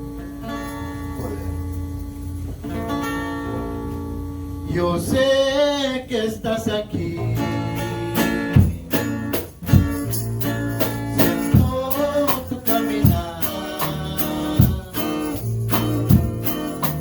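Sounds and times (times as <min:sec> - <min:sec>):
person singing: 0:04.7 - 0:09.3, 0:11.2 - 0:15.9
band playing worship music: 0:07.2 - 0:17.0
jingling tambourine: 0:08.2 - 0:17.0.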